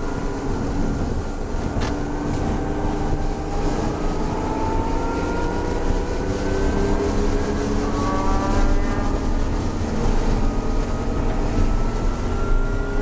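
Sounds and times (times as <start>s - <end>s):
car engine revving under load: 0.0s - 13.0s
road and wind noise: 0.0s - 13.0s.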